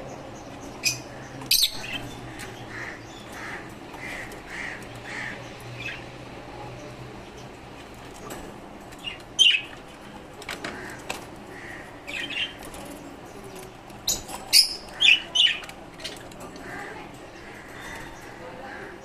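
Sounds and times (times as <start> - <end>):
birds chirping and squawking: 0.0 - 19.0.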